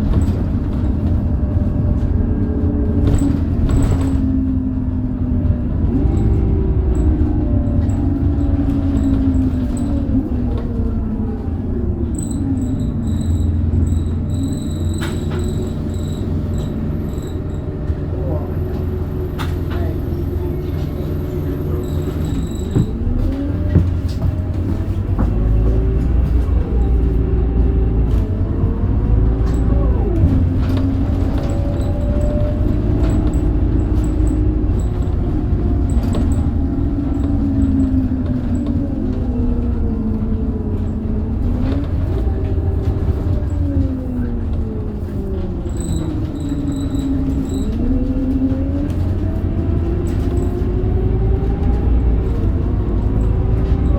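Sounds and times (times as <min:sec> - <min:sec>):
bus engine rumble: 0:00.0 - 0:53.9.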